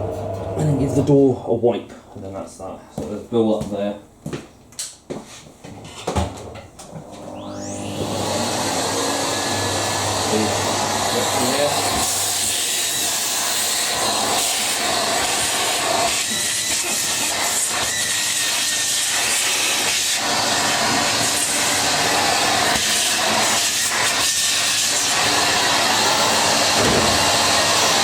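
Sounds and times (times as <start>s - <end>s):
vacuum cleaner hissing: 7.0s - 28.0s.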